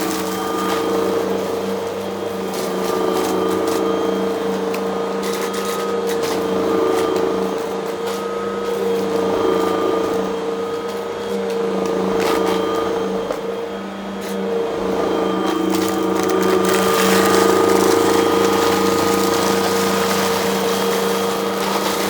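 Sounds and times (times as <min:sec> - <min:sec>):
debris crackling in vacuum: 0:00.0 - 0:04.9, 0:15.3 - 0:22.0
vacuum cleaner running: 0:00.0 - 0:22.0.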